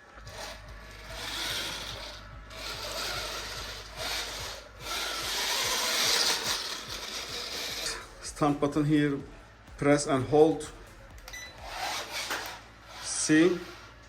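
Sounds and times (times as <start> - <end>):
toy tyres scrubbing on floor: 0.0 - 8.0, 11.6 - 14.0
small electric motor whirring: 0.2 - 8.0, 11.6 - 14.0.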